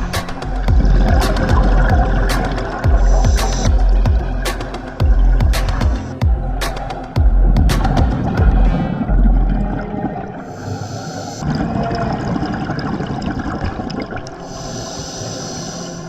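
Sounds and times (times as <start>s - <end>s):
underwater bubbling: 0.0s - 16.0s
hissing breaths through regulator: 1.8s - 4.1s, 10.4s - 11.5s, 14.4s - 16.0s.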